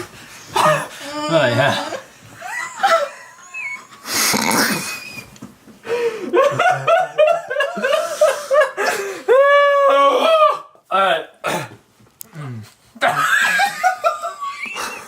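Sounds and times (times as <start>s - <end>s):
breathy hiss: 0.0s - 6.4s
person making vocal cries: 0.6s - 5.1s.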